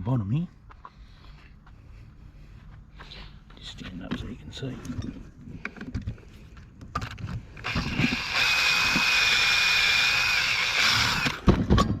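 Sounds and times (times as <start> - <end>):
power drill whining: 7.6 - 11.6.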